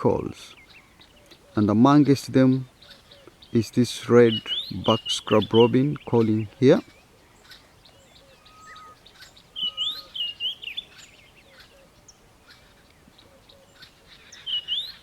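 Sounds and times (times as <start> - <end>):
faint bird chirps: 0.0 - 15.0
bird singing warbled whistles: 4.3 - 7.1, 7.9 - 11.7, 14.2 - 15.0.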